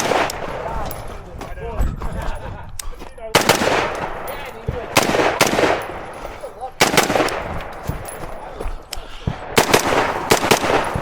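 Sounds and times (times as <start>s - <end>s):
rifle shots with echo: 0.0s - 1.0s, 3.3s - 8.5s, 9.3s - 11.0s.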